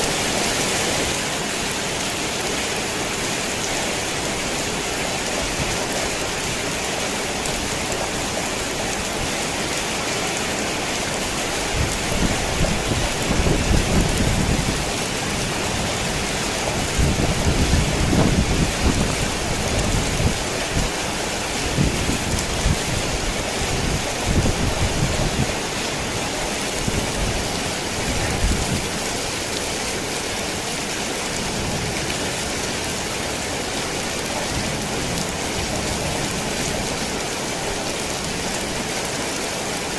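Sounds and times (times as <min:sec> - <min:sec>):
heavy rain on a tin roof: 0:00.0 - 0:39.9
thunder rumbling: 0:11.8 - 0:25.6.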